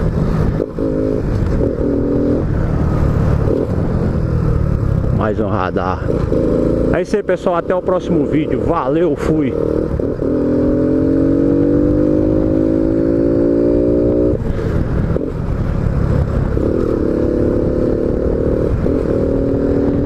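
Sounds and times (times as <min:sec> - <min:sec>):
motorcycle engine running: 0:00.0 - 0:20.0
wind rumble on microphone: 0:11.4 - 0:20.0.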